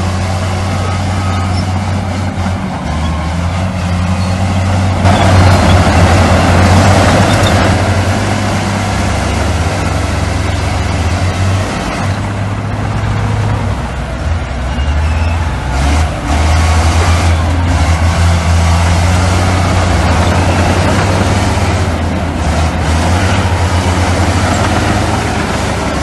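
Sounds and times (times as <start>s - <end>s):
diesel engines running: 0.0s - 26.0s
loud rushing noise: 4.6s - 14.6s.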